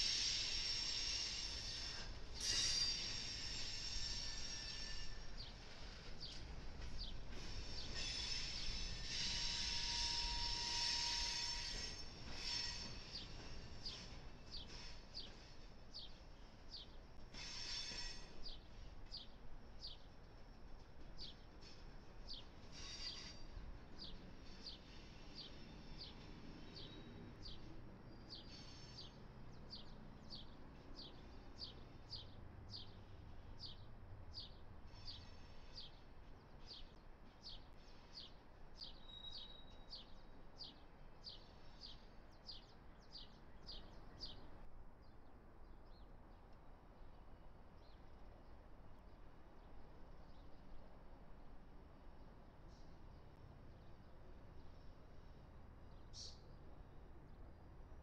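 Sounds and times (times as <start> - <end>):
train wheel squeal: 0.0 - 44.6, 52.5 - 57.0
container train rolling past: 0.0 - 44.7, 45.3 - 58.0
bird chirping: 36.6 - 44.5, 55.9 - 56.7.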